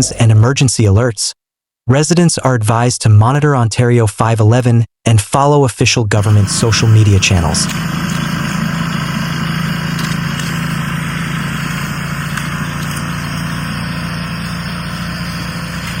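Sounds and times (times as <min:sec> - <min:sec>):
engine idling: 0:06.2 - 0:16.0.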